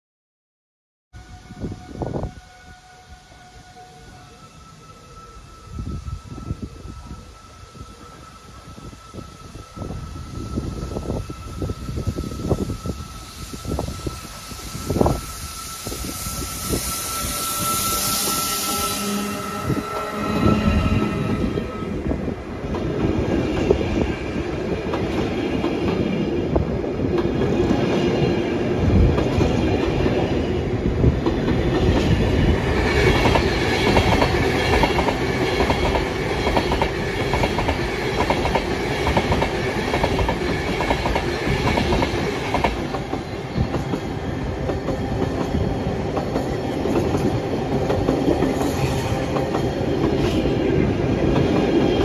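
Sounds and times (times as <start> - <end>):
high-pitched whine: 1.2 - 22.6.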